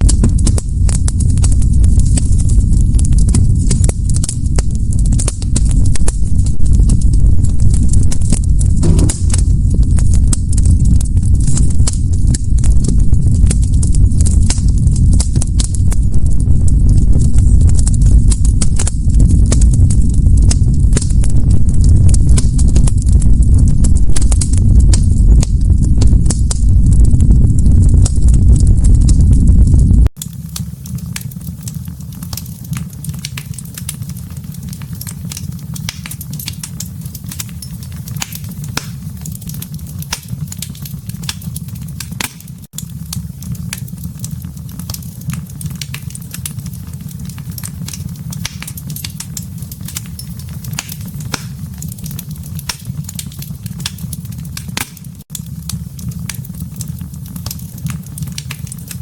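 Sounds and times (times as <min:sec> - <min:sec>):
steady low rumble: 0:00.0 - 0:30.1
wood fire crackling and popping: 0:00.0 - 0:59.0.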